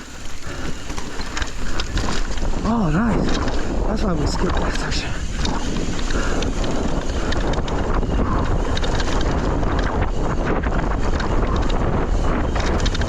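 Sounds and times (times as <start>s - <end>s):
tyres rolling over dirt: 0.0s - 4.6s
bike rattling: 0.0s - 13.0s
wind on microphone: 0.0s - 13.0s.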